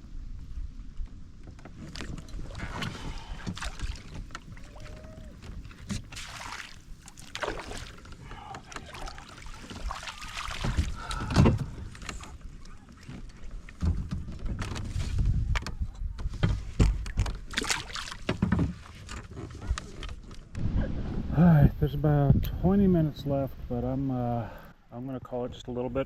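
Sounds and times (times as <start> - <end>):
water sloshing and splashing: 1.4 - 20.4.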